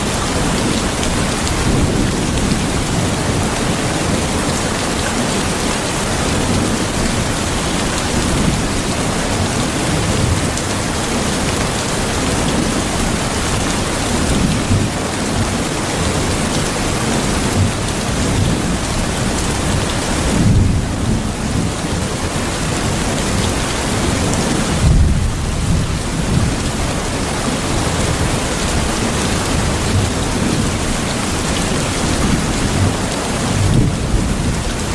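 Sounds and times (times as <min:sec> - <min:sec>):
steady rain: 0:00.0 - 0:34.9
low rolling thunder: 0:17.3 - 0:22.0, 0:23.4 - 0:31.1, 0:31.7 - 0:34.9.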